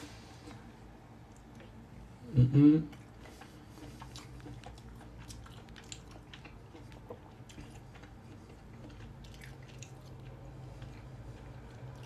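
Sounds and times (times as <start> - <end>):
low steady hum: 0.0 - 12.0
wet chewing mouth clicks: 2.9 - 12.0.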